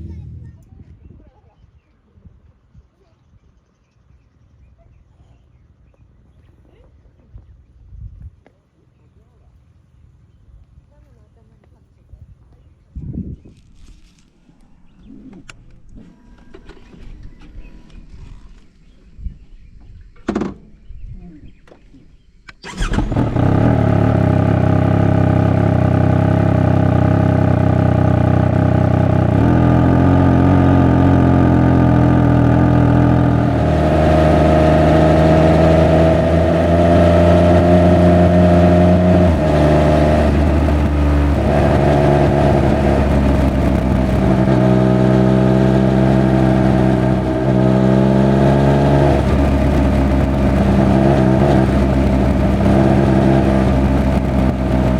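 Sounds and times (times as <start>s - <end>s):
motorcycle engine starting and running: 0.0s - 0.8s, 13.6s - 20.9s, 21.6s - 54.9s.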